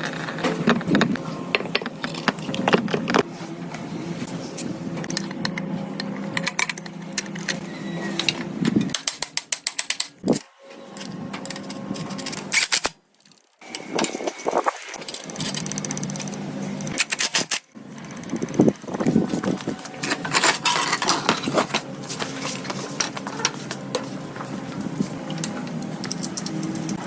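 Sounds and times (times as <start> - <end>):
rapid mechanical clicking: 15.0 - 19.5.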